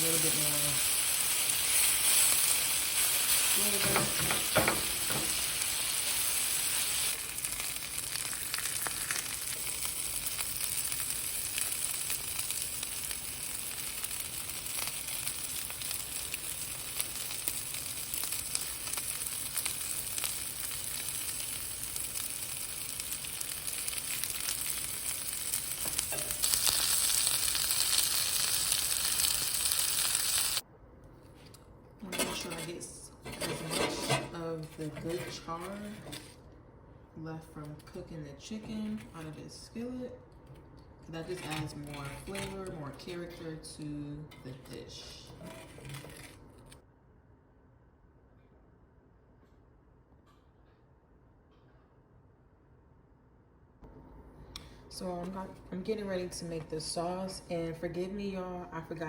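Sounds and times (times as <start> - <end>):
chicken sizzling in a skillet: 0.0 - 30.6.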